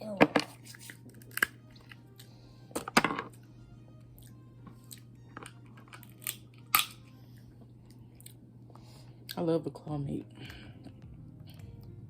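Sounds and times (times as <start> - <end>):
person chewing and crunching crab: 4.2 - 8.5.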